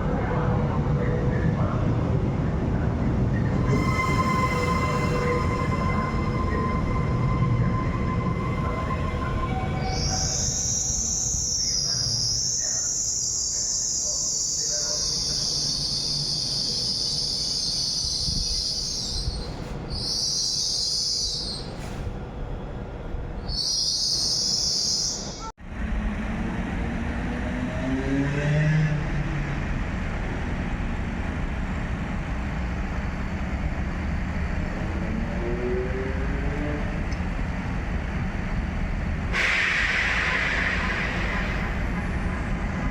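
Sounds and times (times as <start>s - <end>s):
train rumbling: 0.0s - 42.9s
shrill high hiss: 3.6s - 19.1s.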